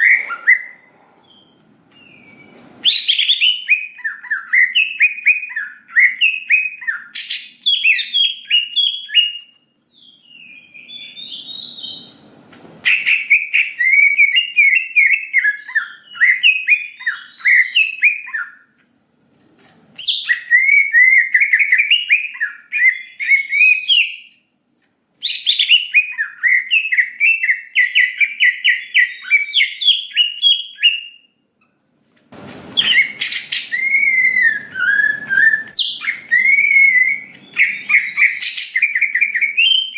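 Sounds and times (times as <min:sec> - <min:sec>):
bird singing chirps and trills: 0:32.8 - 0:39.9.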